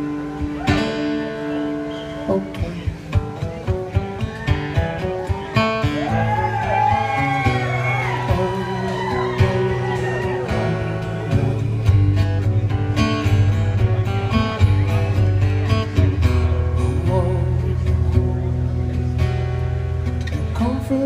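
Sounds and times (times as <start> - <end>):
acoustic guitar plucking notes: 0.0 - 21.0
steady bass line: 4.8 - 21.0.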